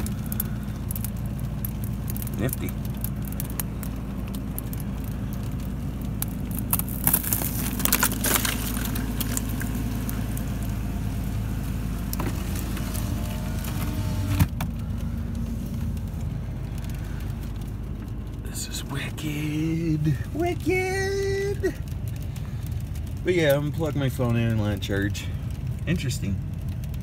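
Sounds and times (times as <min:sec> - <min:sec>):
small clicks and rattles: 0:00.0 - 0:10.8, 0:12.0 - 0:27.0
truck engine idling: 0:00.0 - 0:25.8.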